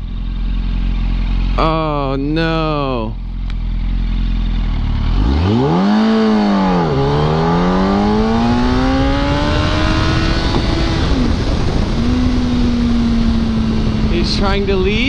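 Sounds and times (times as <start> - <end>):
motorcycle engine accelerating: 0.0 - 15.0
wind noise: 5.9 - 15.0.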